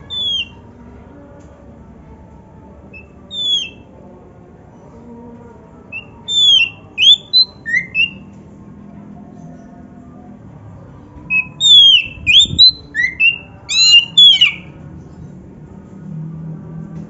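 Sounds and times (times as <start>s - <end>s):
bird singing whistled notes: 0.0s - 0.6s, 3.0s - 3.8s, 5.9s - 8.3s, 11.3s - 14.8s.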